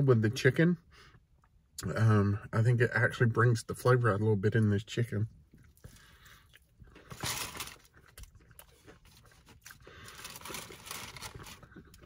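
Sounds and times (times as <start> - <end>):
crunching and chewing fried chicken: 5.3 - 12.0.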